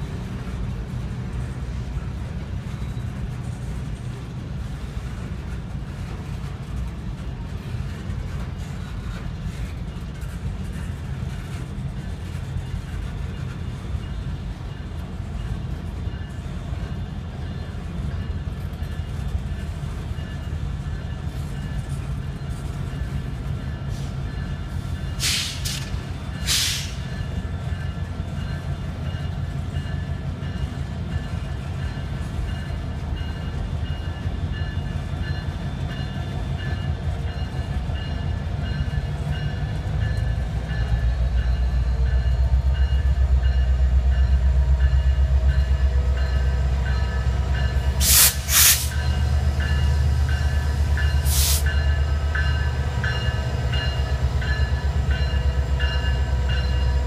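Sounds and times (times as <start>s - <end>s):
boxcars rumbling on rails: 0.0s - 57.0s
diesel locomotive rumble: 0.0s - 57.0s
short bursts of hiss: 26.5s - 27.0s, 48.0s - 49.0s, 51.3s - 51.7s.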